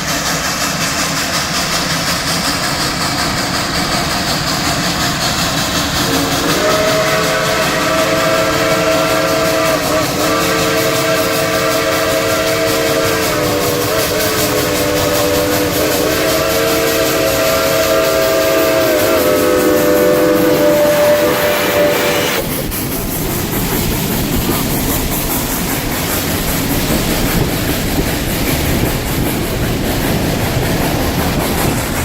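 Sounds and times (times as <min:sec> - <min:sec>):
steam hissing: 0:00.0 - 0:32.0
steam locomotive chime whistle: 0:06.0 - 0:22.7.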